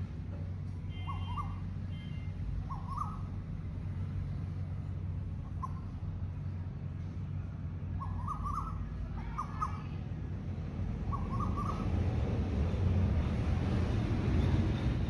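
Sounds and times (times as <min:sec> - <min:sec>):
bird calling: 0:01.0 - 0:01.6, 0:02.6 - 0:03.3, 0:08.0 - 0:09.9, 0:11.1 - 0:12.0.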